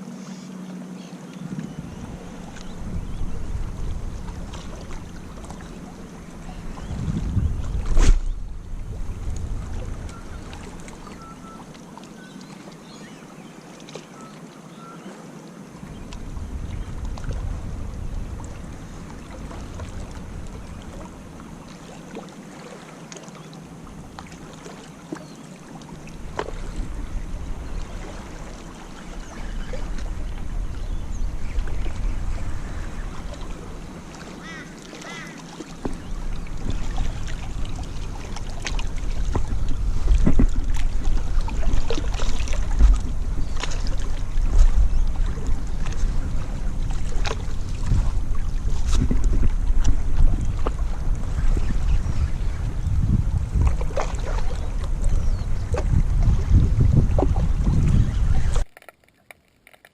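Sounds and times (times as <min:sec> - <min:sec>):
surf on a beach: 0:00.0 - 0:23.1
wind buffeting microphone: 0:01.5 - 0:11.3, 0:15.9 - 0:21.6, 0:26.0 - 0:58.6.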